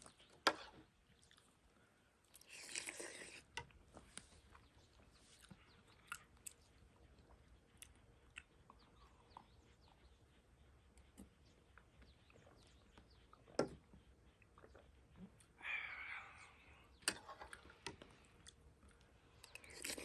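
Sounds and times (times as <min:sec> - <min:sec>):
person slurping noodles: 0:02.5 - 0:03.5
chewing clicks: 0:05.4 - 0:06.6, 0:07.2 - 0:09.5.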